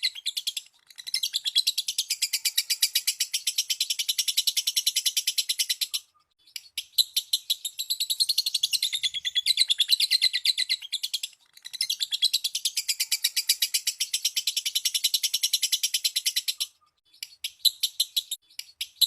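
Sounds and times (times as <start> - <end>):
lovebird chattering trill: 0.0 - 19.0.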